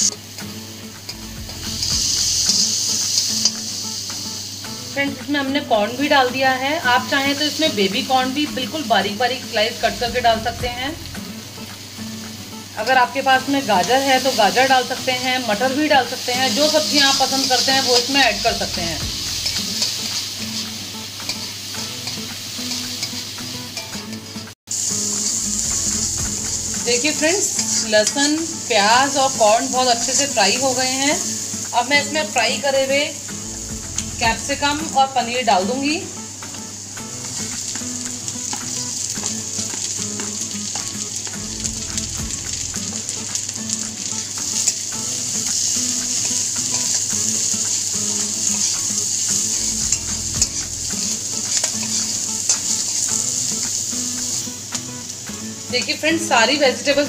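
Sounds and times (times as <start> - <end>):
food sizzling in hot oil: 0.0 - 57.0
spatula scraping and tapping pan: 19.0 - 24.3, 45.6 - 54.4.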